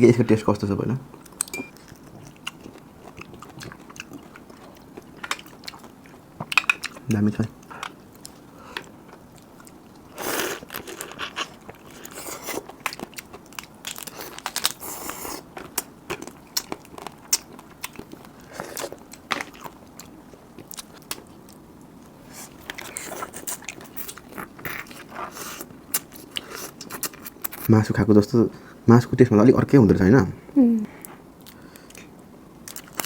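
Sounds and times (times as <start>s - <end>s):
biting and chewing: 1.2s - 21.6s
crab shell cracking and crunching: 1.2s - 21.6s, 31.4s - 33.0s.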